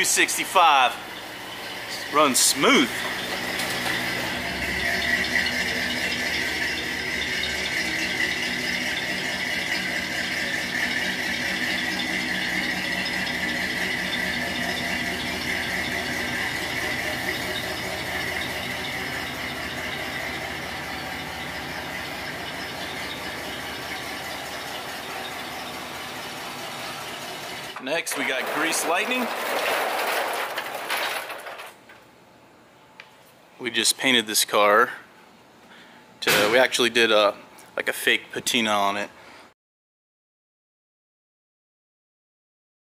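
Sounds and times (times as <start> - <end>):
high-pitched squeal: 0.0 - 31.6
engine running: 0.0 - 31.8.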